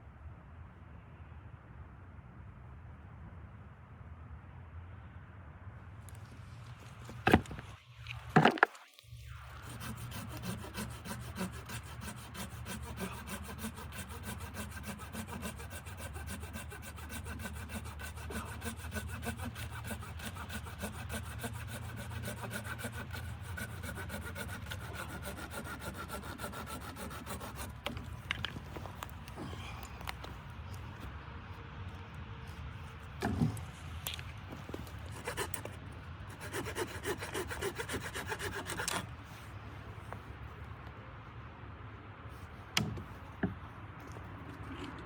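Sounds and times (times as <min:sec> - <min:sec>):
saw cutting through wood: 0:09.3 - 0:28.4, 0:34.6 - 0:39.1.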